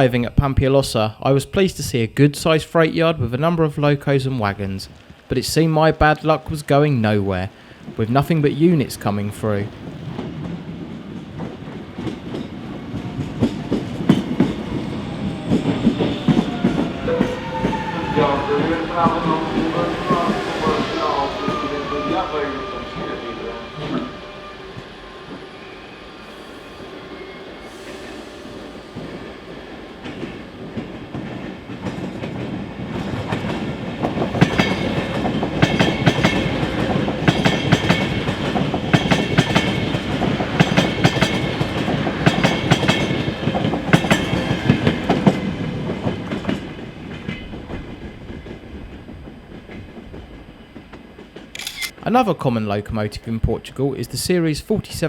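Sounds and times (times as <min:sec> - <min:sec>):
train wheels clattering over rail joints: 0:31.2 - 0:46.7.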